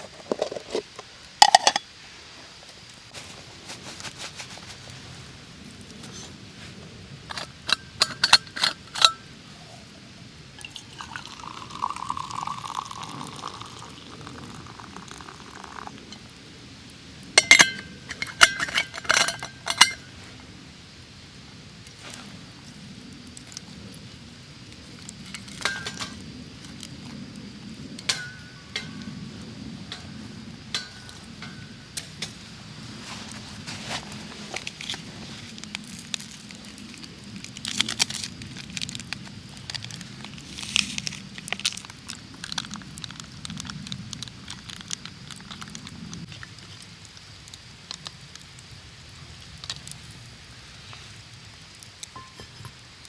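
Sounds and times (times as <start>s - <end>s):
cookware clinking together: 1.4s - 1.8s, 17.4s - 20.0s, 30.8s - 31.7s, 52.2s - 52.7s
liquid being poured: 10.6s - 16.3s.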